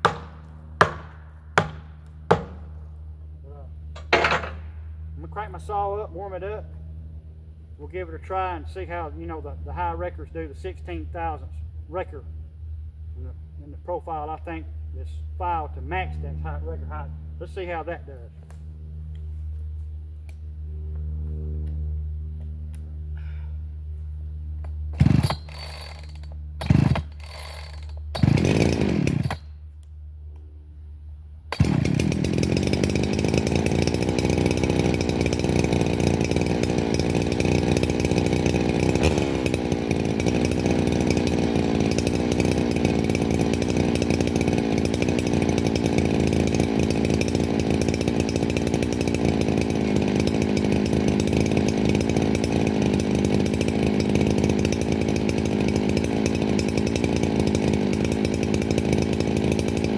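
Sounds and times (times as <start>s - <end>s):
chainsaw revving and cutting wood: 0.0s - 3.1s, 3.8s - 4.6s, 24.8s - 29.6s, 31.4s - 59.9s.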